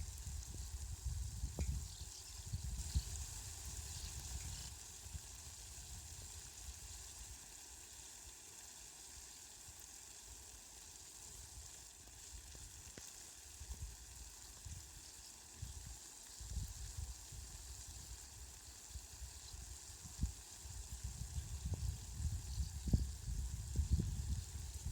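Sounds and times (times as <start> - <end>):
steady rain hissing: 0.0 - 24.9.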